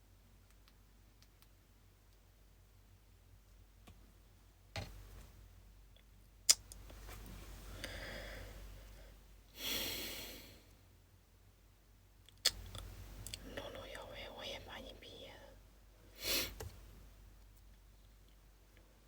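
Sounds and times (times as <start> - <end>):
person breathing out: 7.7 - 10.7.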